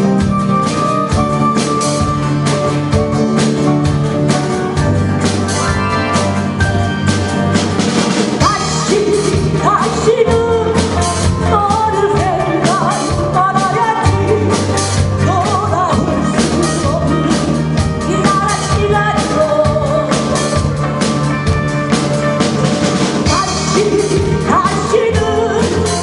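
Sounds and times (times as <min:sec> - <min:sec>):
bass guitar: 0:00.0 - 0:26.0
drum kit: 0:00.0 - 0:26.0
rock band playing: 0:00.0 - 0:26.0
lead melody bending in pitch: 0:05.0 - 0:07.7.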